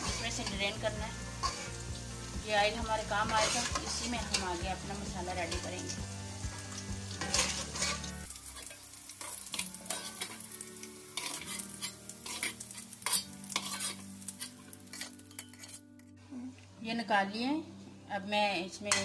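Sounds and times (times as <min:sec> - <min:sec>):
food sizzling in hot oil: 0:00.0 - 0:15.8, 0:18.8 - 0:19.0
metal ladle scraping pot: 0:01.4 - 0:01.8, 0:03.2 - 0:04.5, 0:07.2 - 0:10.4, 0:11.2 - 0:15.9.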